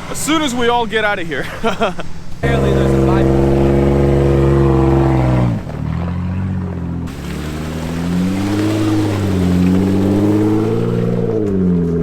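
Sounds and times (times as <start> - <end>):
car engine revving: 2.4 - 12.0.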